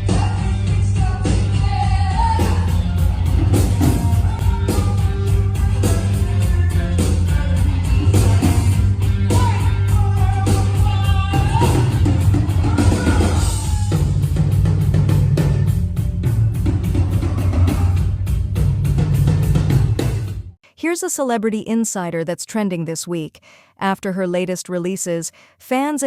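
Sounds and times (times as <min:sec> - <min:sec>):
rock lead vocal: 0:00.0 - 0:13.6
guitar: 0:00.0 - 0:18.1
drums and bass: 0:00.0 - 0:20.6.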